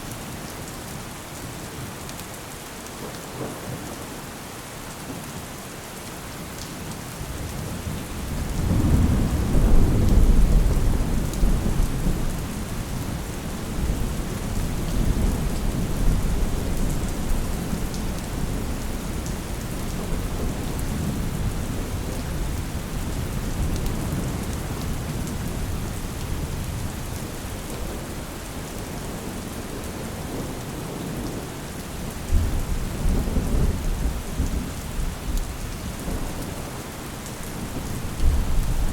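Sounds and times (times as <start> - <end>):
steady rain: 0.0 - 38.9
rolling thunder: 8.3 - 19.2, 37.5 - 38.9.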